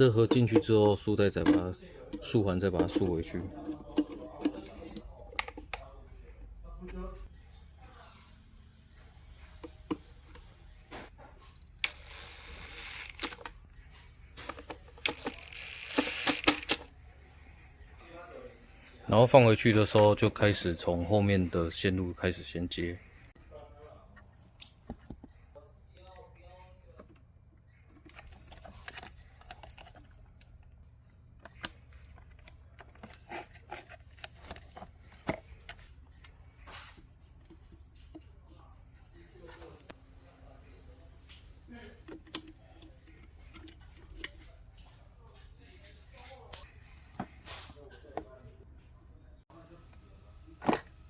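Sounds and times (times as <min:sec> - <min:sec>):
plastic parts clicking and rattling: 0:00.0 - 0:05.9, 0:11.8 - 0:13.6, 0:14.4 - 0:16.9, 0:27.0 - 0:38.3, 0:42.0 - 0:44.6.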